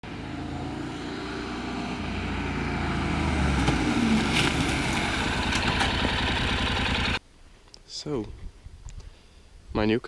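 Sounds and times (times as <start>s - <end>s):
diesel engine running: 2.0s - 7.2s.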